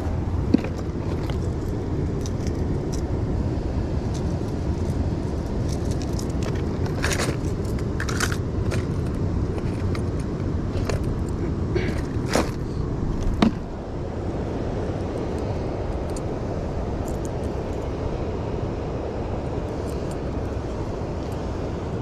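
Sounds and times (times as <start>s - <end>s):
river water rushing: 0.0s - 22.0s
clicks and rattles: 5.6s - 12.6s.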